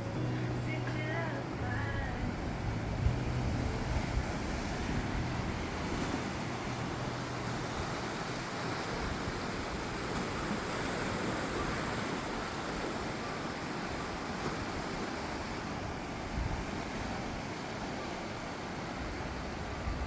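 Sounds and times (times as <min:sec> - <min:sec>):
steady rushing noise: 0:00.0 - 0:10.5.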